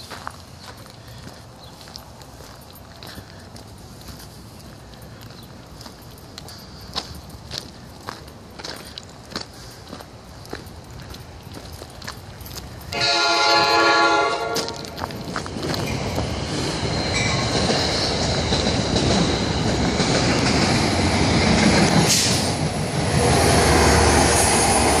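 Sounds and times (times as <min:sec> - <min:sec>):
train rumbling along track: 0:00.0 - 0:25.0
train horn: 0:12.9 - 0:15.0.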